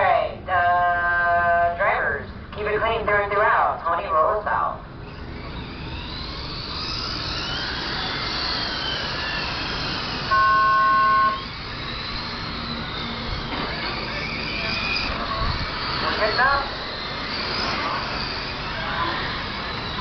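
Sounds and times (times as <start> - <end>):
rc car motors whining: 4.8 - 20.0
loud electronic beep: 10.2 - 11.6.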